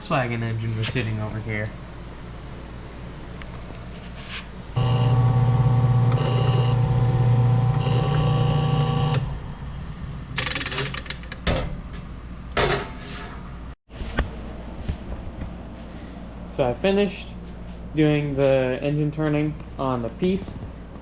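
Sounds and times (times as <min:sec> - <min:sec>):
electric drill whining: 0:04.8 - 0:09.4.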